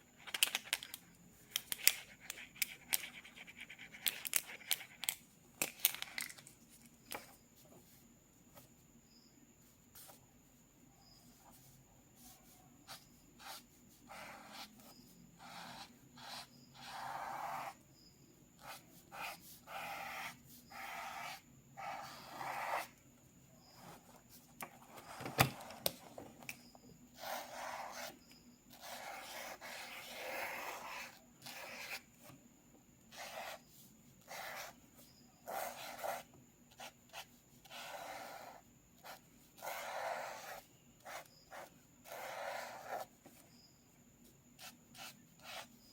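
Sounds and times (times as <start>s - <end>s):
pencil strokes scratching paper: 1.8s - 5.2s, 11.1s - 17.8s, 18.6s - 25.3s, 27.1s - 32.4s, 33.1s - 43.6s, 44.2s - 45.9s.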